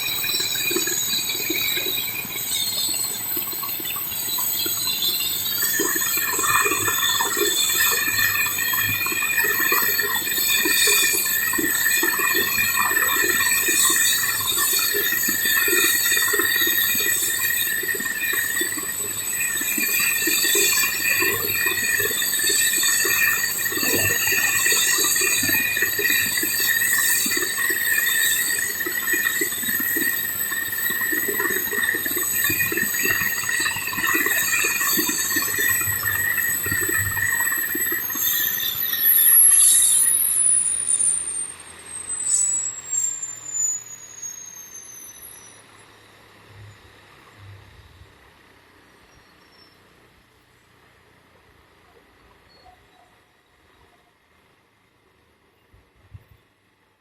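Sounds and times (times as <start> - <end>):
helicopter turbine whining: 0.0 - 41.0.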